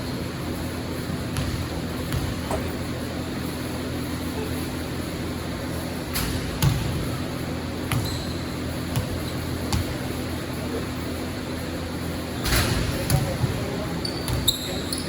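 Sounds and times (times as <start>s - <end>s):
basketball bouncing on gym floor: 1.2s - 3.0s, 6.1s - 10.4s, 12.4s - 15.0s.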